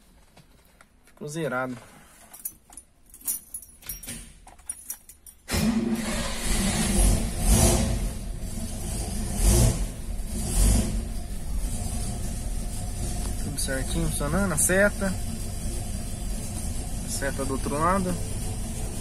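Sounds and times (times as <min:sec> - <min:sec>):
keys jangling: 0:02.2 - 0:05.5
car engine starting and running: 0:05.5 - 0:19.0.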